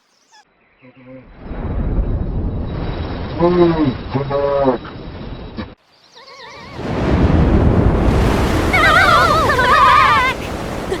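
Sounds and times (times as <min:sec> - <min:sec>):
rushing wind: 0:01.3 - 0:05.8, 0:06.6 - 0:11.0
warbling animal cries: 0:06.2 - 0:06.8.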